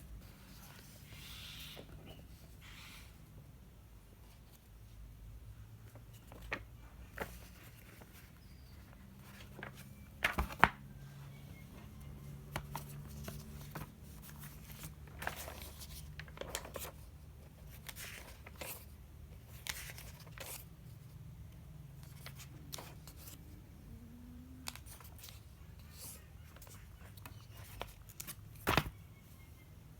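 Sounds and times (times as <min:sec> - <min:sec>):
cardboard and plastic rustling: 0:09.0 - 0:11.3, 0:11.9 - 0:20.6.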